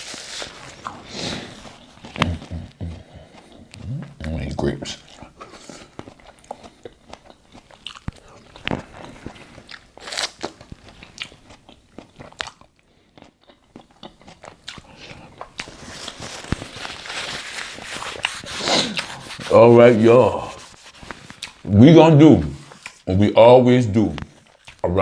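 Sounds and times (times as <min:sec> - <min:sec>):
person chewing grapes: 0:00.0 - 0:21.7, 0:22.4 - 0:23.1, 0:24.1 - 0:24.9
rubbing noise: 0:15.7 - 0:21.7.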